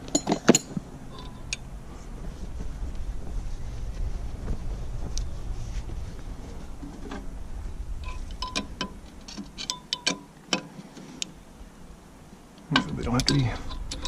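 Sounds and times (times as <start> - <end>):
low rumble: 0.0 - 9.7.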